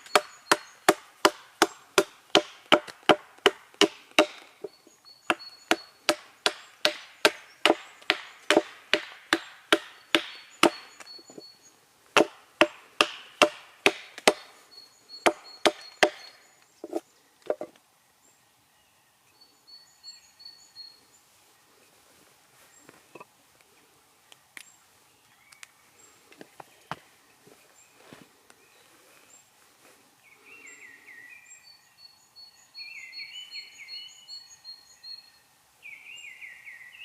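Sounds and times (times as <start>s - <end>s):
hatchet chopping wood: 0.0s - 10.9s, 12.2s - 14.5s, 15.2s - 16.4s
birds singing faintly: 0.0s - 37.0s.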